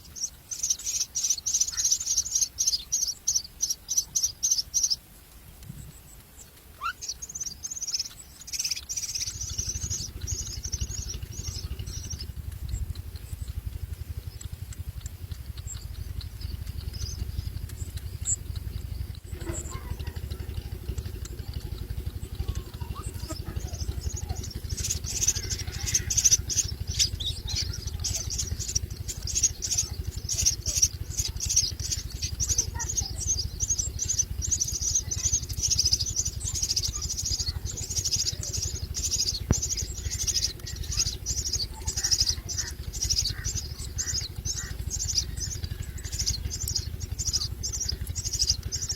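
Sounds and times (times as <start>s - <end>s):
chicks begging calls: 0.0s - 48.9s
steady low rumble: 0.0s - 48.9s.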